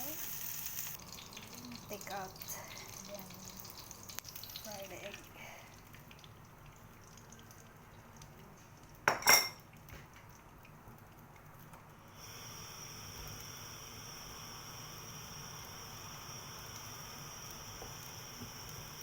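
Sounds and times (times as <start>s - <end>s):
steady hiss with high whine: 0.0s - 1.1s, 12.0s - 19.0s
utensil clinking against cookware: 9.1s - 9.6s.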